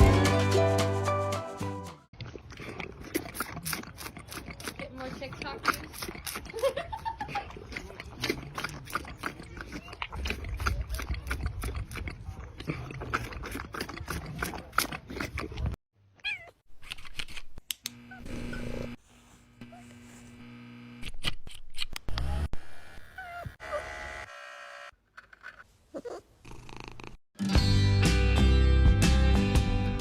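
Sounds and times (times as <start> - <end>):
cats meowing: 16.2 - 16.6.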